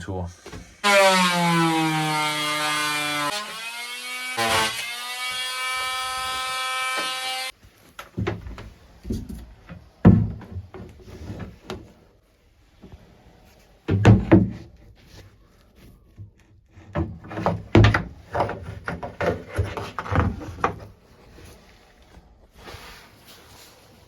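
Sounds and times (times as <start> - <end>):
knocks and thumps: 8.1 - 11.9, 13.9 - 14.7, 16.9 - 20.9.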